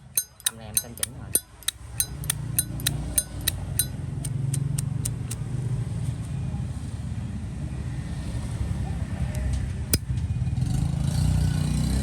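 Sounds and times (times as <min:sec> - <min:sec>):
lighter lid clicking: 0:00.0 - 0:05.4.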